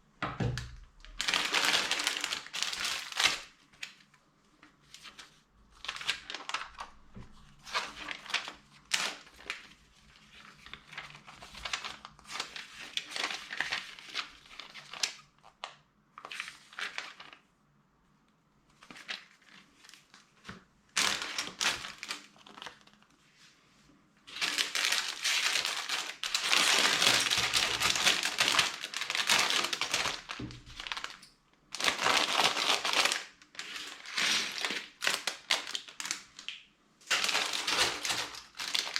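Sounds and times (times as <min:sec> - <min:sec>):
plastic packaging crinkling: 0:00.4 - 0:04.1, 0:05.0 - 0:17.4, 0:21.0 - 0:23.1, 0:24.3 - 0:38.9.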